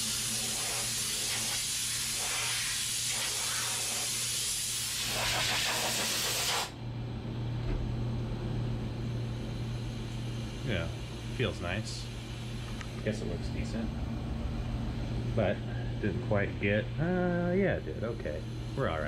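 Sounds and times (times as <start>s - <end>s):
air blow gun hissing: 0.0s - 6.7s
steady low hum: 0.0s - 19.0s.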